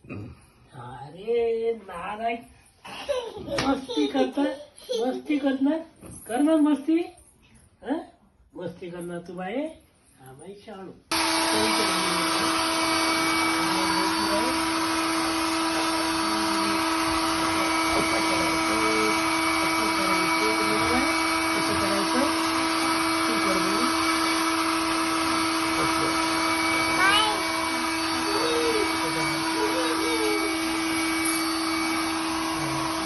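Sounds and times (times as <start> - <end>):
small electric motor humming: 11.1 - 33.0.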